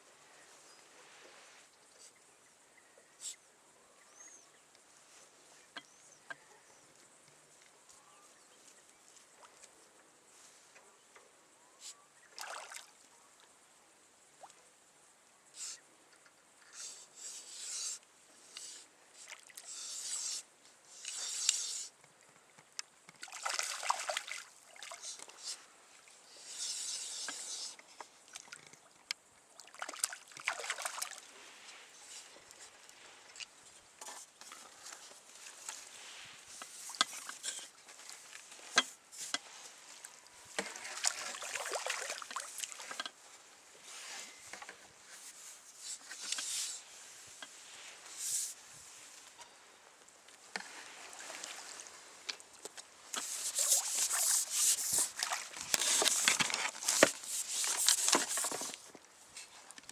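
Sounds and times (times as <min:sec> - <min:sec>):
faint bird chirps: 0:01.9 - 0:07.0, 0:07.8 - 0:09.2
water splashing and sloshing: 0:12.3 - 0:13.1, 0:23.1 - 0:43.8, 0:50.5 - 0:59.1.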